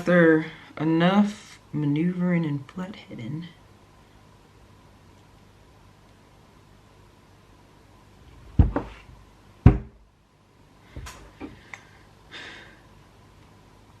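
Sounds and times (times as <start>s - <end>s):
heavy knocks: 9.6s - 10.0s.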